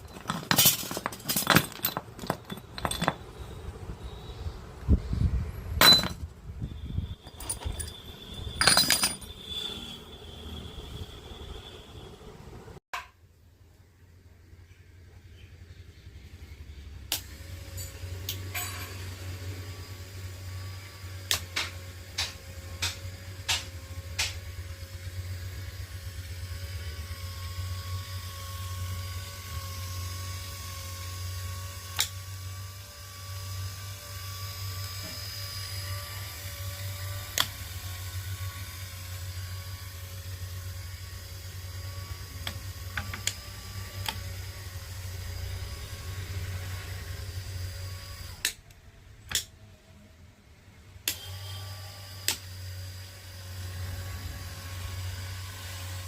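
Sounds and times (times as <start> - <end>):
faint machine whine: 0.0 - 12.8
small machine humming: 1.9 - 12.8, 13.8 - 56.0.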